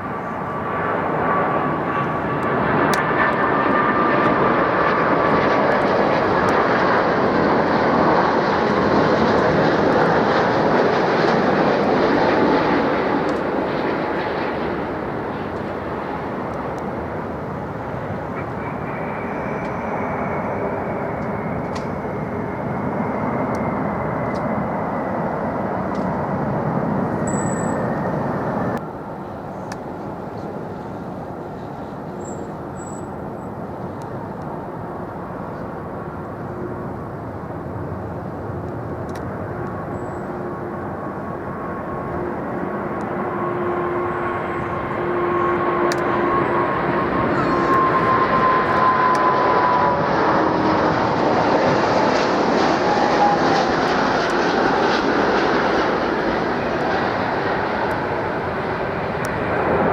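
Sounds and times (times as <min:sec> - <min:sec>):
jet airliner engines passing: 0:00.0 - 0:59.9
descending engine whine: 0:14.6 - 0:28.9, 0:39.5 - 0:59.9.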